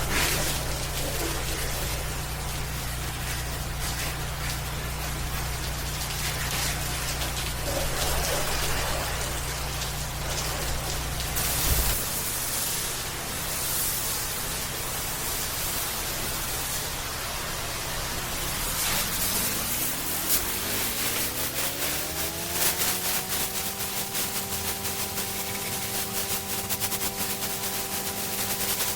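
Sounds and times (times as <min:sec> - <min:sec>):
low machine hum: 0:00.0 - 0:28.9
water spraying from hose: 0:00.0 - 0:28.9
motor whine: 0:16.4 - 0:28.7.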